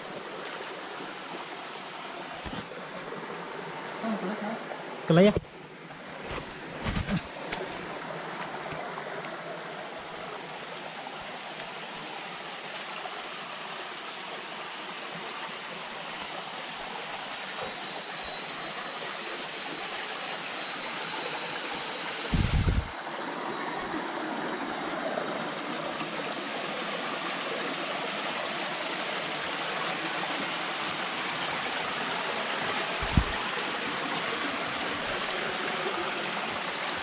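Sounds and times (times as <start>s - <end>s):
water flowing over rocks: 0.0s - 37.0s
low thumps: 22.3s - 22.9s, 33.0s - 33.4s.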